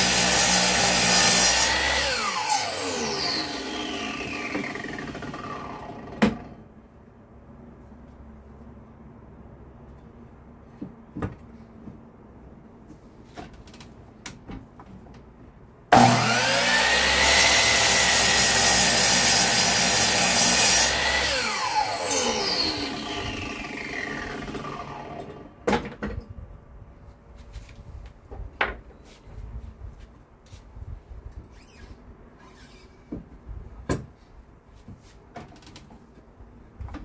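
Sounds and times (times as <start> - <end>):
power tool high whine: 0.0 - 6.0, 15.9 - 25.4.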